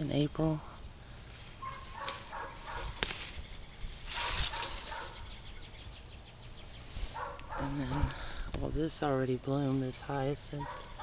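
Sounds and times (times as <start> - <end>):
rustling and handling noises: 0.0 - 5.3.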